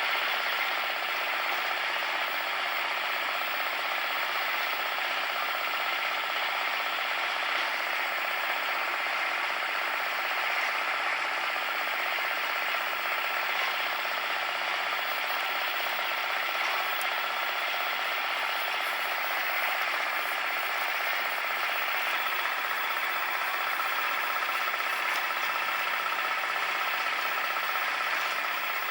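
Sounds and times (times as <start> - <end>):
cement mixer clattering: 9.3 - 28.9.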